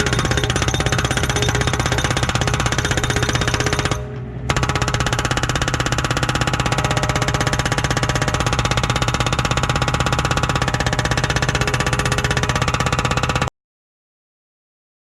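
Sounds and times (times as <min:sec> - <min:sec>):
hydraulic breaker hammering rock: 0:00.0 - 0:13.5.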